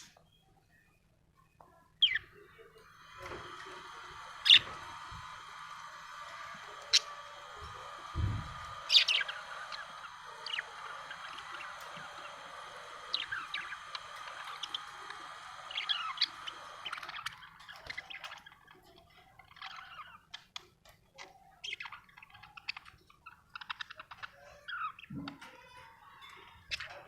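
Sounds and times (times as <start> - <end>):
budgerigar chirping and chattering: 2.0 - 18.8.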